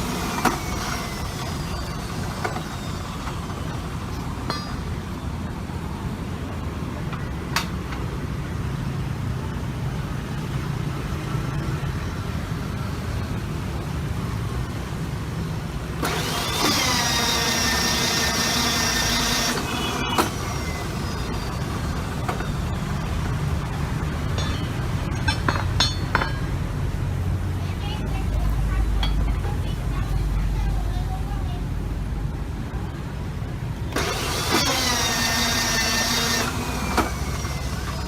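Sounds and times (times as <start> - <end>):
motor starting with a whine: 0.0 - 4.0, 16.0 - 23.0, 33.9 - 38.0
electric motor humming: 16.0 - 22.4, 34.0 - 38.0.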